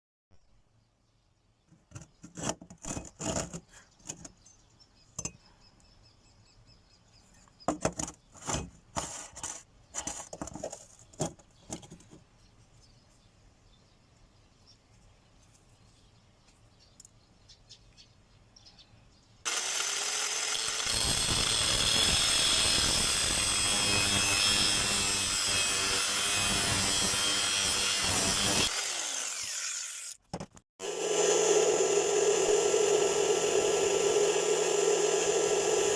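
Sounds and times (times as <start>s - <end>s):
power tool cutting steel: 19.5s - 30.2s, 30.8s - 35.9s.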